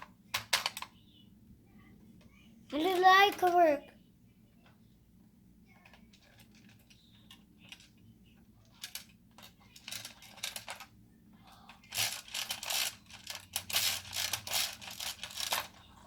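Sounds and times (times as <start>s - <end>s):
plastic toy parts clicking: 0.0s - 0.9s, 8.6s - 10.9s, 11.7s - 15.9s.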